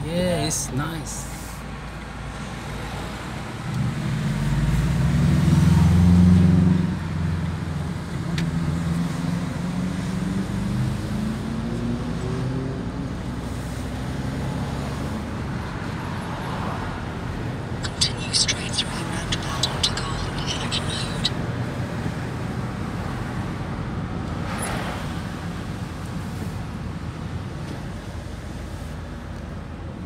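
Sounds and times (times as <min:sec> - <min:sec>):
car engine accelerating: 0:02.8 - 0:13.0.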